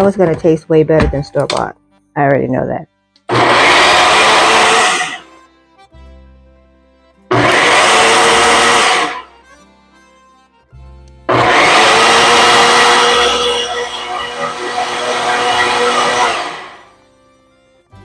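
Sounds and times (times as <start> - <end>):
blender pulsing: 3.3 - 5.3, 7.3 - 9.3, 11.3 - 16.9.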